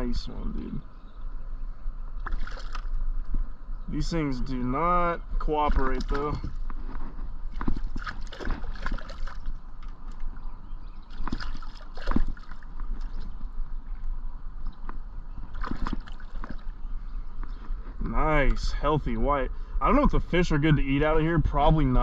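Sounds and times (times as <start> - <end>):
water sloshing and splashing: 2.2 - 3.4, 5.4 - 13.6, 14.7 - 17.7.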